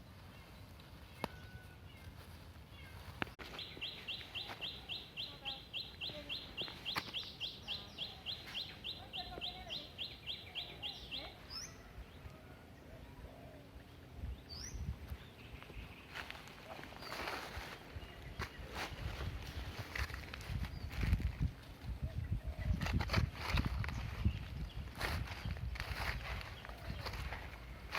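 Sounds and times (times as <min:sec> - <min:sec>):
bird chirping: 0:00.2 - 0:21.3.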